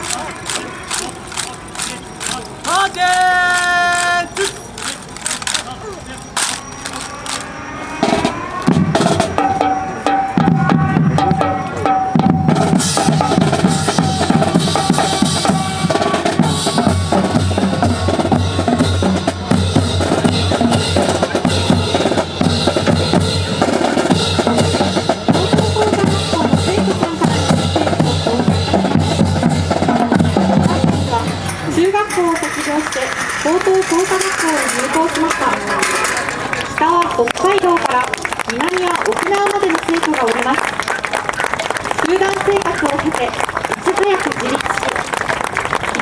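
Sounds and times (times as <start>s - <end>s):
marching snare and bass drums: 8.0s - 36.3s.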